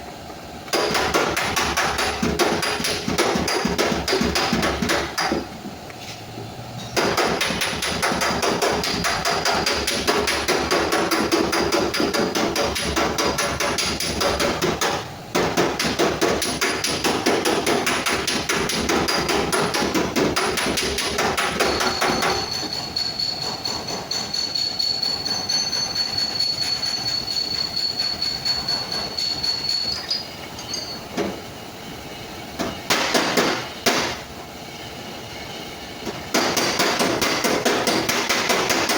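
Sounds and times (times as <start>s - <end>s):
hammering on sheet metal: 0.7s - 5.5s, 7.0s - 29.6s, 32.6s - 34.2s, 36.0s - 38.9s
thin high ringing tone: 21.5s - 32.5s.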